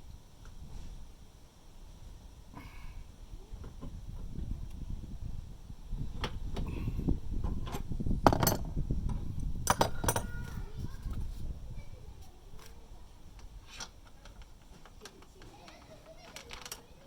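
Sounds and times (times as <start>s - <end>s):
rustling handling noise: 8.5s - 17.0s
metal tools clinking: 9.7s - 10.6s.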